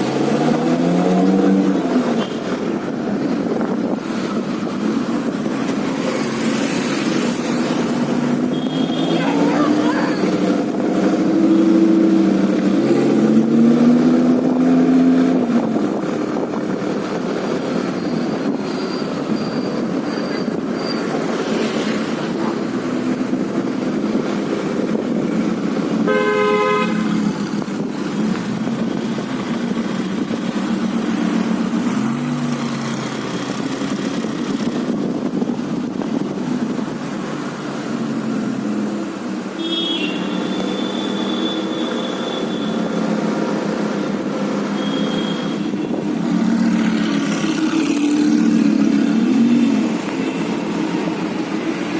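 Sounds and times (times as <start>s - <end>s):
car engines passing: 0.0s - 51.9s
vehicle horn honking: 26.1s - 27.1s, 39.6s - 42.8s, 44.8s - 45.7s.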